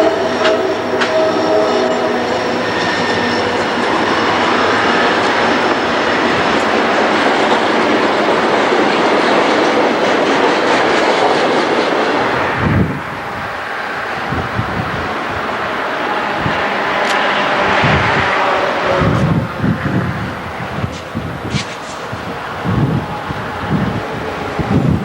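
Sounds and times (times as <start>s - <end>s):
high wheel squeal: 0.0s - 6.5s
train rumbling on rails: 0.0s - 25.0s.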